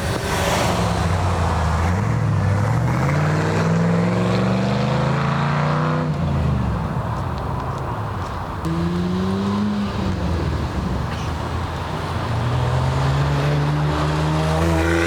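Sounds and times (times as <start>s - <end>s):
car engine accelerating: 8.6s - 15.0s.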